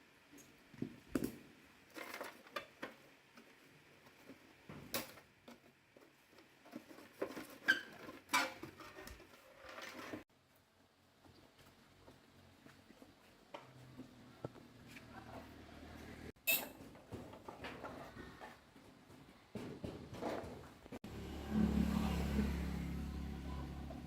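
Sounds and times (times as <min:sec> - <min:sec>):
clicks and scrapes of tool work: 0:01.9 - 0:10.3.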